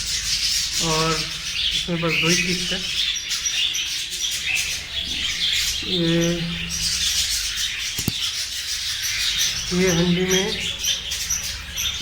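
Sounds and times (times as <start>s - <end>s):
budgerigars chirping: 0.0s - 12.0s
sharp click: 8.0s - 8.3s.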